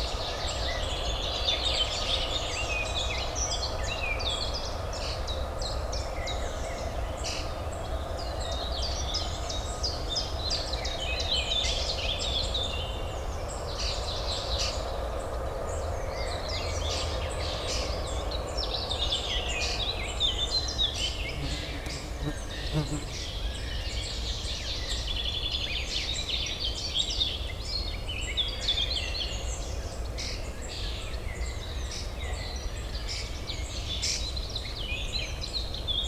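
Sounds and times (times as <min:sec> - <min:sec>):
small birds chirping: 0:21.1 - 0:23.4.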